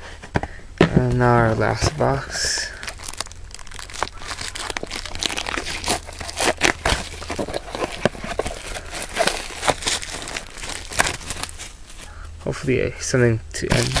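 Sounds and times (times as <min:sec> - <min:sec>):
plastic wrapping crinkling: 0:01.6 - 0:12.1, 0:13.6 - 0:14.0.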